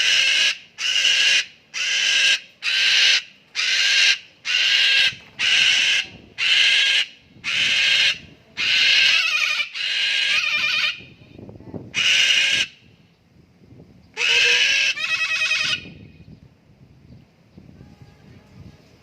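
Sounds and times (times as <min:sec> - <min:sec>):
cockatoo screeching: 0:00.0 - 0:11.2, 0:11.9 - 0:12.8, 0:14.2 - 0:16.0.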